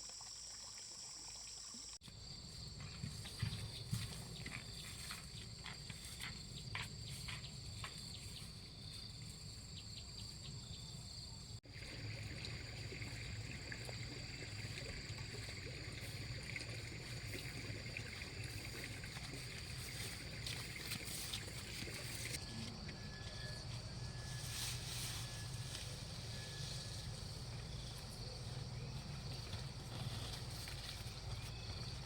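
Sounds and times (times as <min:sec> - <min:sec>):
high insect drone: 0:12.0 - 0:32.0.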